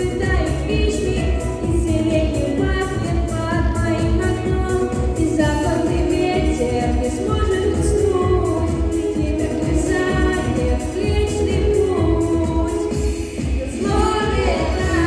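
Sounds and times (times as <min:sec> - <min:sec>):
backing music with bass beat: 0:00.0 - 0:15.0
person singing: 0:00.0 - 0:15.0.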